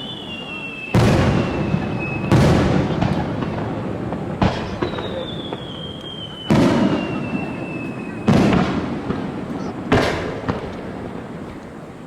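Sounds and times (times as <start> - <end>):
fireworks booming: 0.0 - 12.0.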